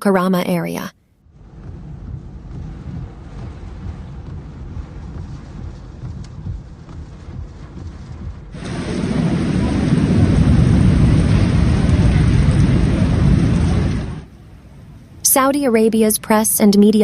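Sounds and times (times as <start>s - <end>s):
low gusty rumble: 1.1s - 17.0s
wind: 1.2s - 17.0s
heavy rain: 1.3s - 15.4s.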